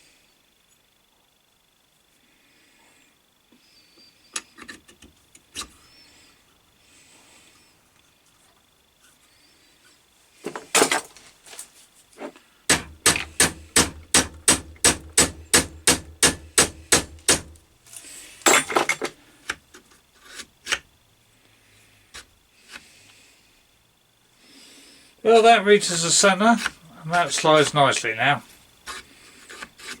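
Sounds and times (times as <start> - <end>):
hammer tapping on steel: 12.7 - 17.6.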